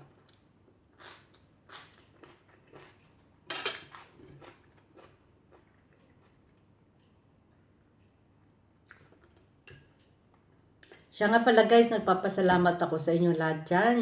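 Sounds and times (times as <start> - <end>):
person chewing and lip-smacking: 1.0 - 3.2, 3.8 - 6.6, 8.8 - 9.5.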